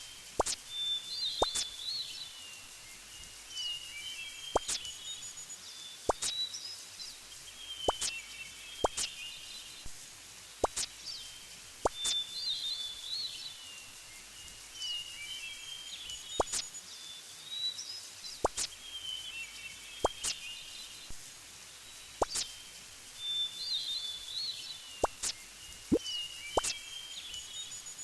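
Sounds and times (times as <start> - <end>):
songbird warbling: 25.0 - 27.0.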